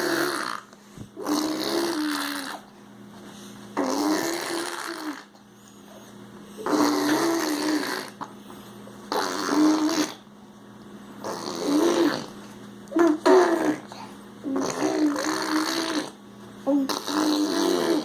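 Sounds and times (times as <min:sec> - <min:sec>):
baby making raspy vocal noises: 0:00.0 - 0:02.6, 0:03.8 - 0:05.3, 0:06.6 - 0:08.3, 0:09.1 - 0:10.2, 0:11.2 - 0:18.0.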